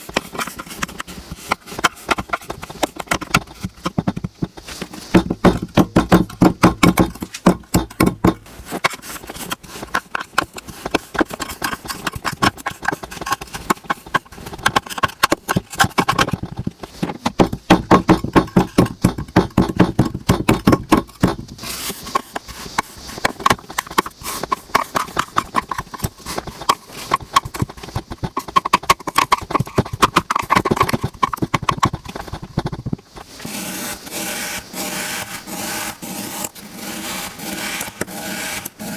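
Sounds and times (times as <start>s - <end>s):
sand scraping rub: 8.4s - 15.0s, 21.0s - 31.1s, 32.0s - 38.9s.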